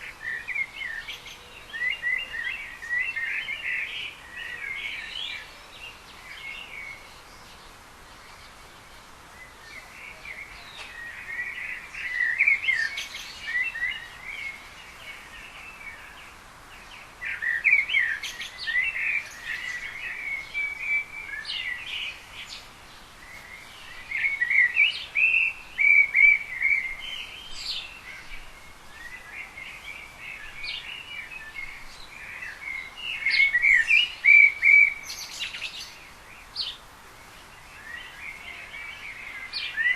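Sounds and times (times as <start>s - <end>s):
faint steady hiss: 0.0s - 39.9s
small birds chirping and twittering: 0.0s - 39.9s.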